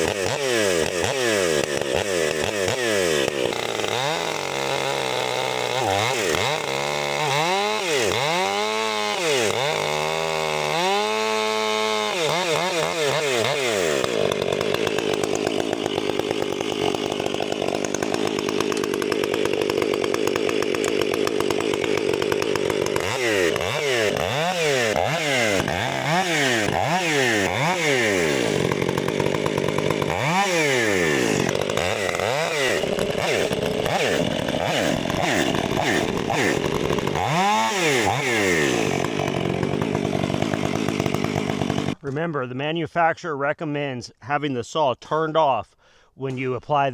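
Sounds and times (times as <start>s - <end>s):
chainsaw revving: 0.0s - 42.0s.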